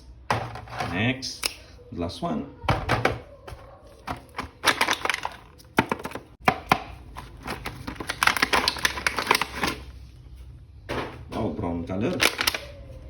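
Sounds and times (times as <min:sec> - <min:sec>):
plastic packaging clicks and crinkles: 0:04.0 - 0:10.1, 0:12.0 - 0:12.8.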